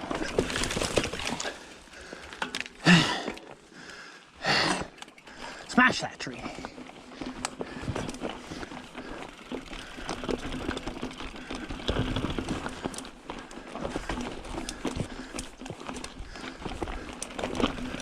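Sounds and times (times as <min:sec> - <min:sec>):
bike frame rattling: 0:00.0 - 0:18.0.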